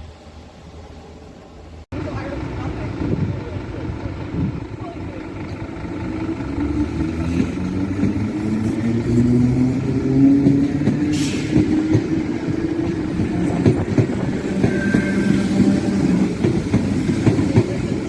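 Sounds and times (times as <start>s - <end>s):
vehicle engines running: 1.9s - 14.8s
short hiss: 11.1s - 11.5s.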